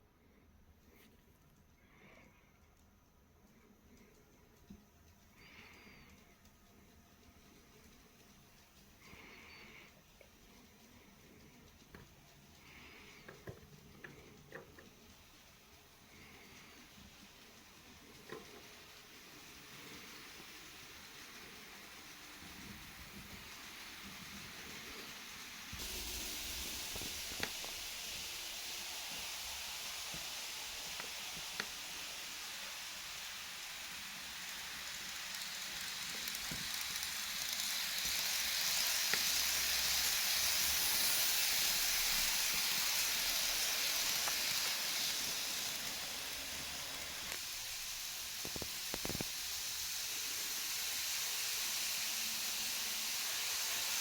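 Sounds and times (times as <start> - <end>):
faint clicks: 0.8 - 18.8
model train whirring on track: 3.6 - 54.0.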